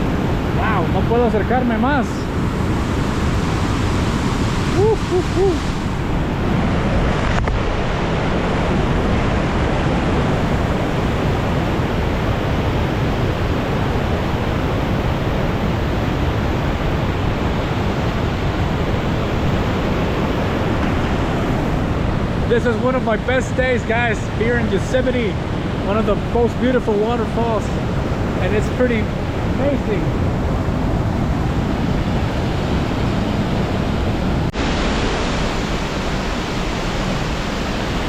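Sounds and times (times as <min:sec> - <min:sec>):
waterfall rushing: 0:00.2 - 0:09.1, 0:34.2 - 0:38.0.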